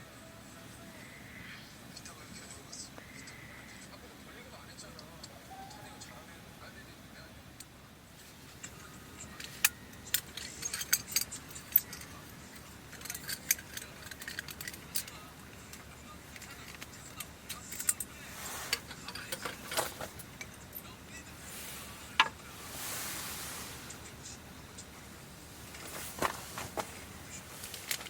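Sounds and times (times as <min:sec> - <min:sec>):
brief rustle: 0:25.6 - 0:28.0.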